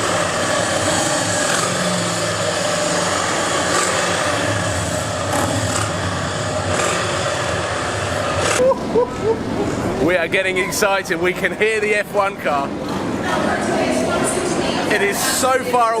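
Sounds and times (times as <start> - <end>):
motorcycles running: 0.0 - 15.4
distant racing car engine: 0.0 - 15.7.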